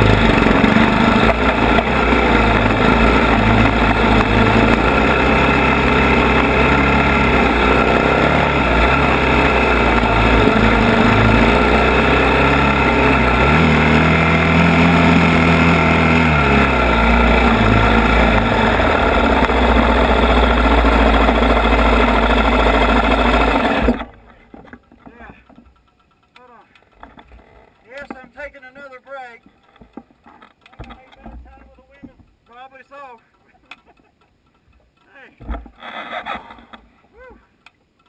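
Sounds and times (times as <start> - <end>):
atv engine running: 0.0 - 28.8.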